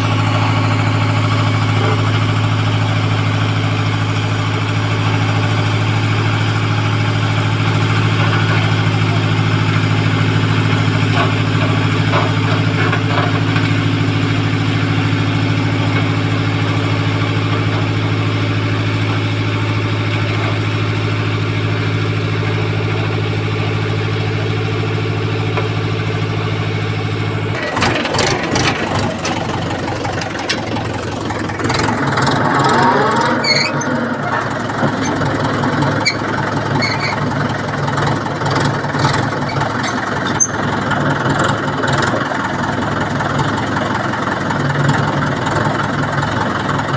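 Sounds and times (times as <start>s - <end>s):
rattling and clicking: 27.5s - 42.2s.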